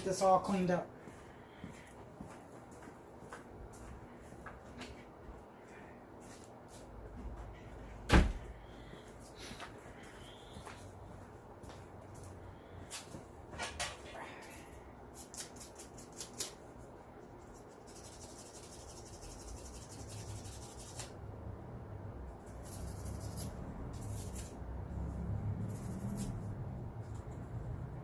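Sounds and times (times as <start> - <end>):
sandpaper scrubbing metal: 17.8 - 21.1.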